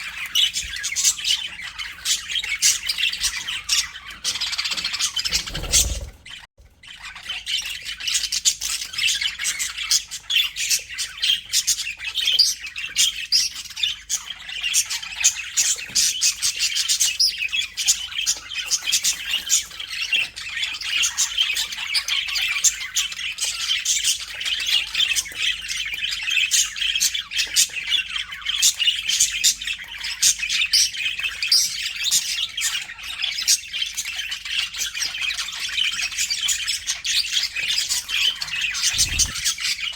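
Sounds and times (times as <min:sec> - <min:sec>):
budgerigars chattering: 0:00.0 - 0:06.4, 0:36.8 - 0:39.9.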